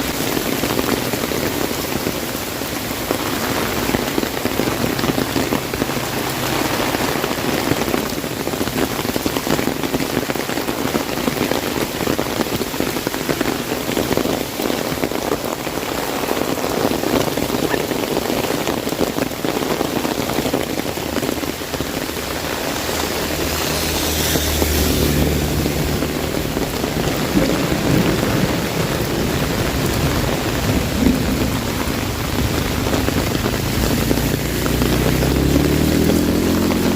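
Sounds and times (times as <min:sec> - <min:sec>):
heavy rain on umbrella: 0:00.0 - 0:36.9
thunder rumble: 0:13.3 - 0:36.9.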